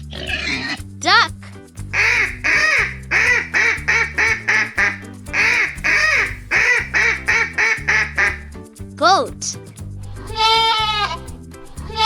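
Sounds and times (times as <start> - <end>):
background music: 0.3 - 12.0
duck quacking: 1.9 - 8.5.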